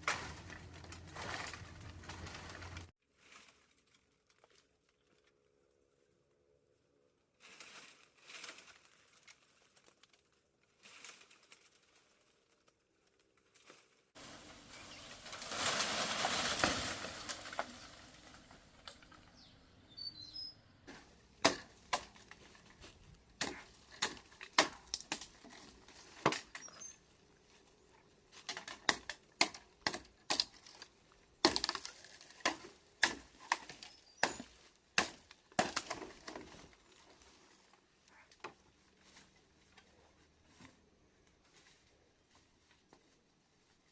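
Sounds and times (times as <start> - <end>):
loud rustle: 13.5 - 18.6
sharp knocks and cracks: 15.2 - 19.3, 20.9 - 26.7, 28.3 - 36.6.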